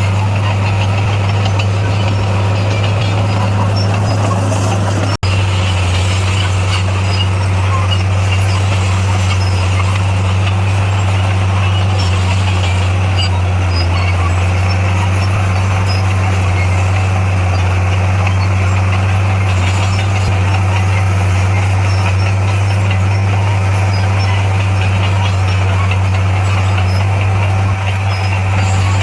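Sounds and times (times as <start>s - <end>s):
bulldozer diesel engine running: 0.0s - 29.0s.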